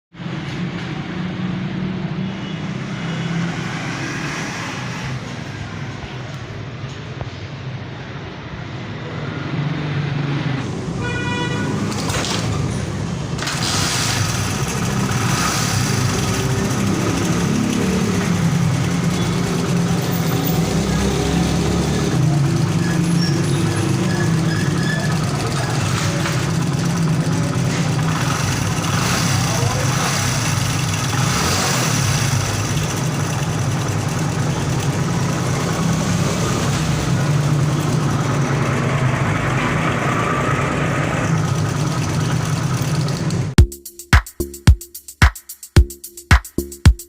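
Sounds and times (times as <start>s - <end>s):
motorcycle engine running: 12.8s - 43.8s.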